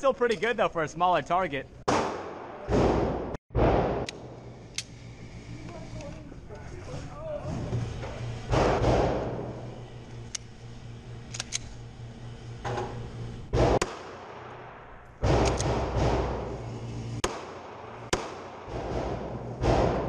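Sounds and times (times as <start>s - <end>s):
handgun shots echoing: 13.8s - 16.1s.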